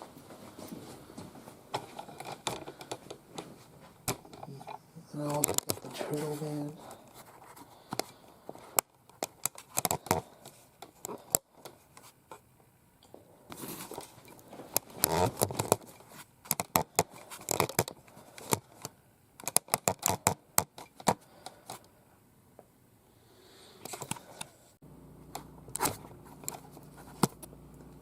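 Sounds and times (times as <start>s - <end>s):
packaging scraping and rustling: 13.6s - 18.6s
sharp clicks and knocks: 14.3s - 21.8s.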